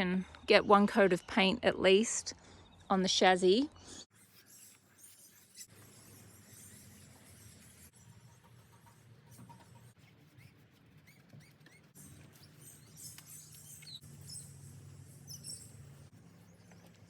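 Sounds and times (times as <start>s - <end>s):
birds chirping: 11.1s - 17.0s.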